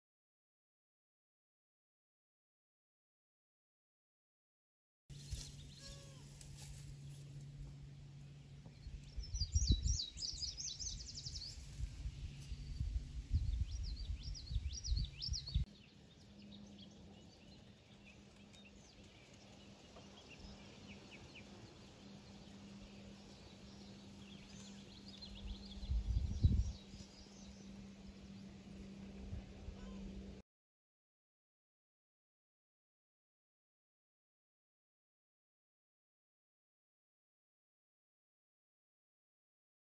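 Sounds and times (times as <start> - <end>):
songbirds calling: 5.1 - 30.4
low rumbles on microphone: 6.8 - 15.7, 25.2 - 27.5.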